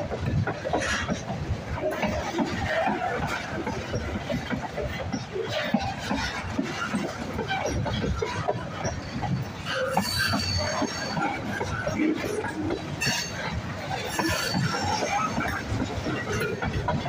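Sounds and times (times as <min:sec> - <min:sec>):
freight train wheels rumbling: 0:00.0 - 0:17.0
high wheel squeal: 0:05.4 - 0:16.7.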